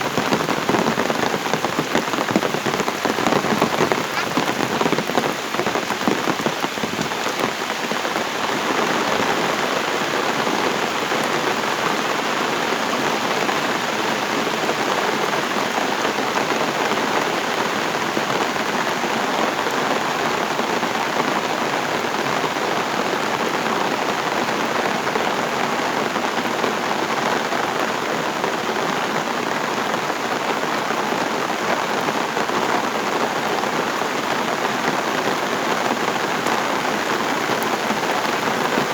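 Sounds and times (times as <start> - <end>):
heavy rain pattering: 0.0 - 38.9.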